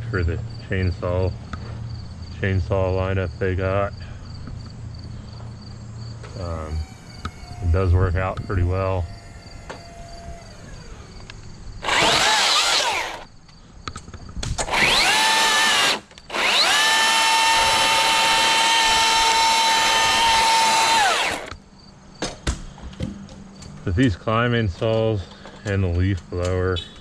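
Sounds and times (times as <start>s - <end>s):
battery chainsaw motor whine: 6.2s - 13.3s, 14.6s - 21.6s.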